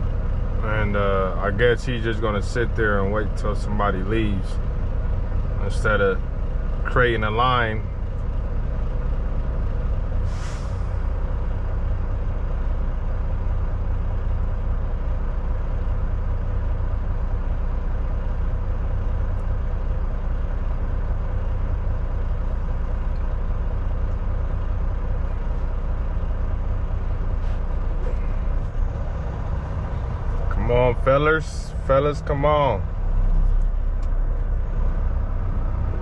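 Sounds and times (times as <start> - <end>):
diesel truck engine rumbling: 0.0 - 36.0
air brake hiss: 10.2 - 11.1.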